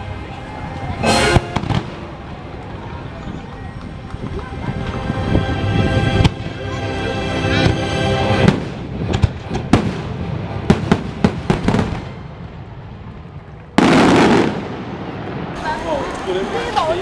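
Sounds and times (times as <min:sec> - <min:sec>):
music with long notes: 0:00.0 - 0:11.8
fireworks bangs: 0:01.1 - 0:02.6, 0:07.6 - 0:17.0.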